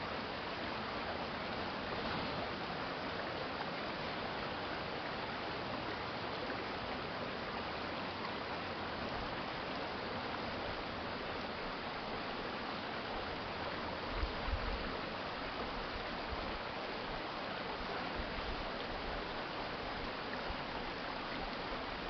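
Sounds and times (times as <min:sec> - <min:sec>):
stream flowing: 0:00.0 - 0:22.0.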